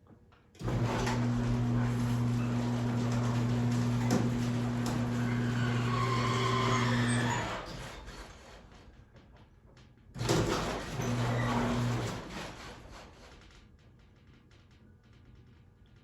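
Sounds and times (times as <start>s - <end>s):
garage door opener motor hum: 0.6s - 8.5s, 10.2s - 12.9s.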